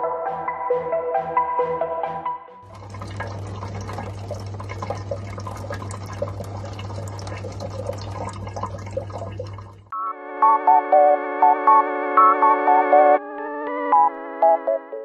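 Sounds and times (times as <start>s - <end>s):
water splashing and trickling: 2.6s - 9.9s.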